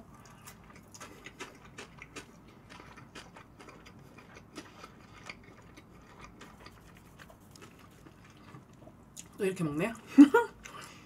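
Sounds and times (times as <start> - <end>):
person chewing food: 0.0 - 9.4.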